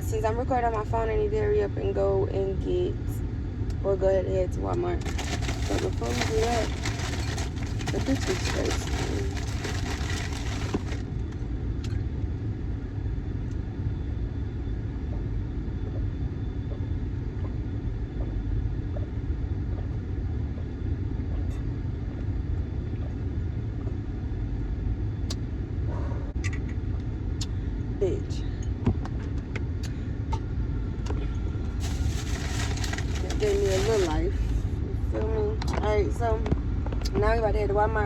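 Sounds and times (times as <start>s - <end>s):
car engine running: 5.0s - 11.0s.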